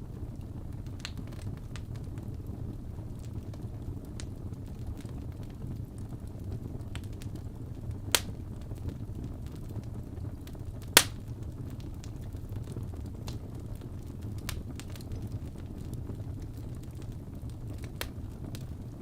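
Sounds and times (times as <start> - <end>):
wood fire burning: 0.0 - 19.0
burning wood popping: 0.2 - 19.0.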